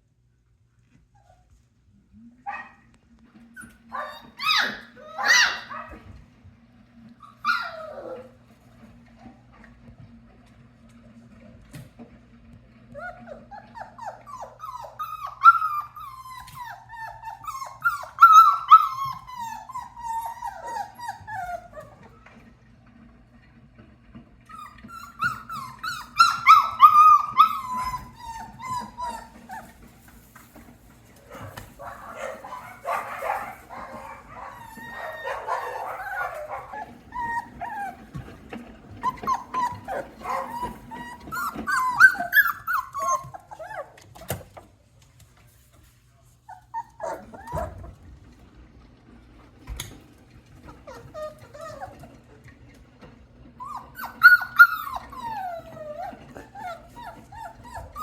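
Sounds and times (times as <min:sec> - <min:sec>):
puppies whimpering and barking: 0:03.4 - 0:06.2, 0:07.2 - 0:08.6, 0:12.8 - 0:22.5, 0:24.4 - 0:44.7, 0:46.4 - 0:48.1, 0:49.8 - 0:58.0
puppies whining and yipping: 0:03.4 - 0:06.2, 0:07.2 - 0:08.6, 0:12.8 - 0:22.4, 0:24.4 - 0:44.6, 0:46.5 - 0:48.1, 0:49.8 - 0:58.0.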